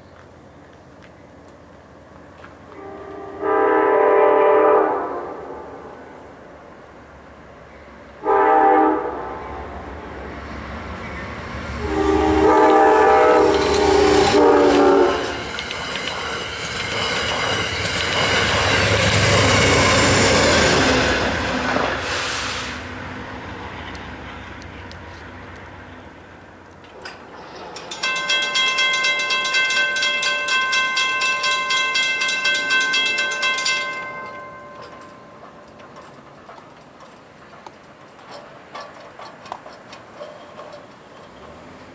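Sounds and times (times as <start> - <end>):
train rumble and rail noise: 0.0 - 41.9
train air horn blasts: 2.7 - 5.8, 8.2 - 9.4, 11.8 - 15.5
railroad crossing bell ringing: 11.8 - 20.8, 27.5 - 36.1
crossing signal bell: 27.8 - 35.8.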